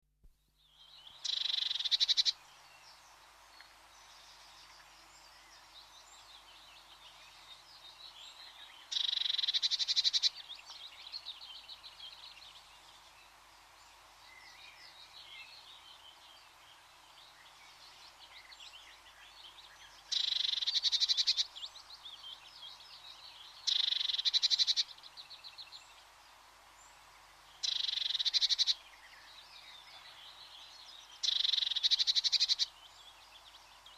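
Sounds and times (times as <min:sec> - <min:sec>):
soft high chirps and calls: 0:01.0 - 0:02.9, 0:06.9 - 0:12.6, 0:17.5 - 0:26.2, 0:27.6 - 0:33.2.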